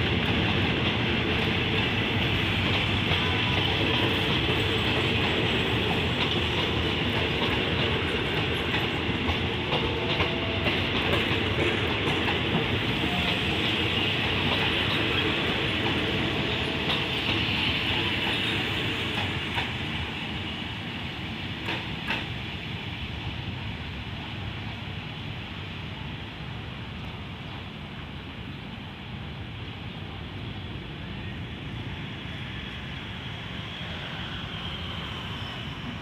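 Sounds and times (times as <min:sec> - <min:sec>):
train wheels clicking over rail joints: 0:00.0 - 0:20.5, 0:21.2 - 0:22.6.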